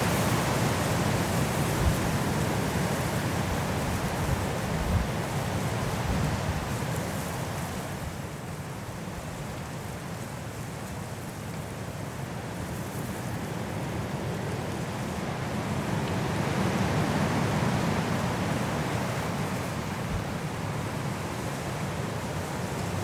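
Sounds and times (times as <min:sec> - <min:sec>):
strong wind blowing through trees: 0:00.0 - 0:23.0.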